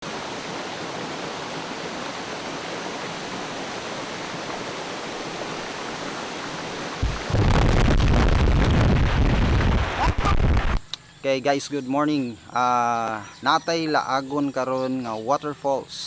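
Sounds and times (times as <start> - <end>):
waterfall rushing: 0.0 - 10.8.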